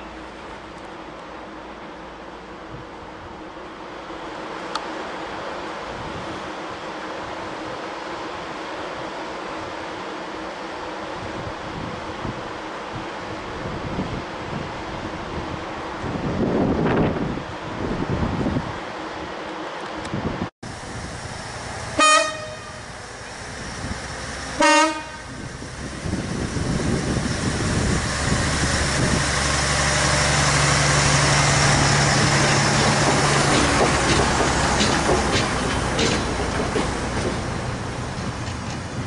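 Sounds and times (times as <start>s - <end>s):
train engine drone: 0.0s - 39.0s
train horn blasts: 22.0s - 22.9s, 24.6s - 25.4s
wheels clacking over rail joints: 27.8s - 39.0s.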